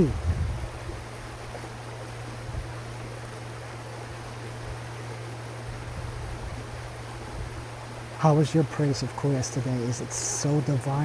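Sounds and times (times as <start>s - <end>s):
constant low hum: 0.0s - 11.0s
even hiss: 8.2s - 11.0s.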